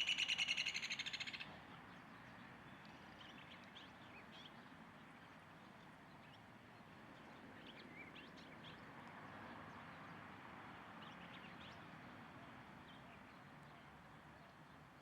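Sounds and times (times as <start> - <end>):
faint bird chirps: 0.0 - 1.4.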